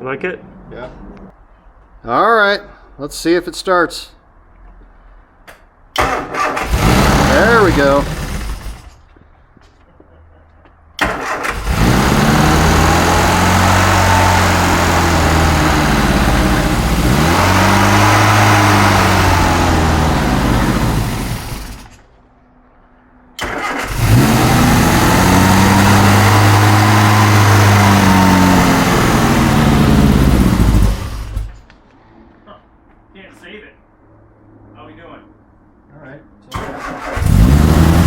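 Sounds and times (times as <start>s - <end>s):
car engine revving: 6.0s - 9.0s, 11.0s - 22.0s, 23.4s - 31.7s, 36.6s - 38.0s.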